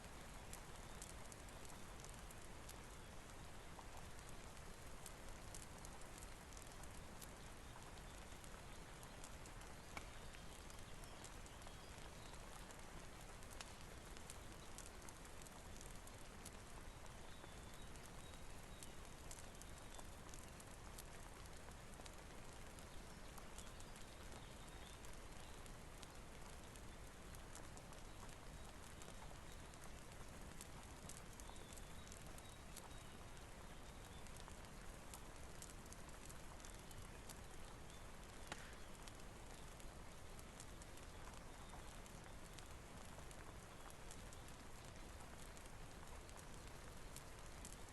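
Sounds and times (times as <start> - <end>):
faint steady rain: 0.0 - 47.9
small scattered ticks: 0.0 - 47.9
wood fire crackling: 0.0 - 47.9.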